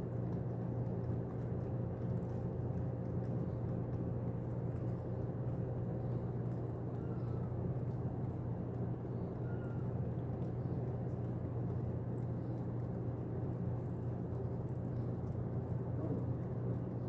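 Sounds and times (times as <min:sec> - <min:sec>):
low hum and rumble: 0:00.0 - 0:17.0.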